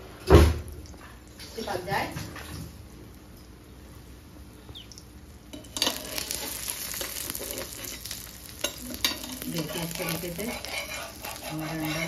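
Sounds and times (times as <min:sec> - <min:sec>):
egg sizzling in pan: 0:05.2 - 0:12.0
scraping against pan: 0:05.6 - 0:12.0.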